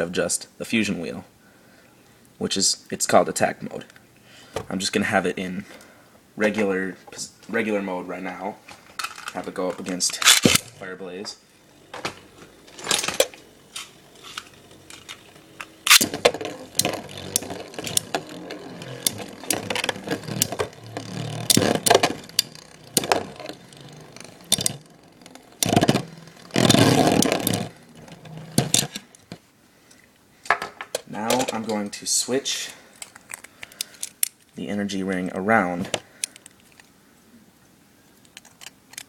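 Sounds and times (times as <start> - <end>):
spinning tops clashing: 11.5 - 29.3.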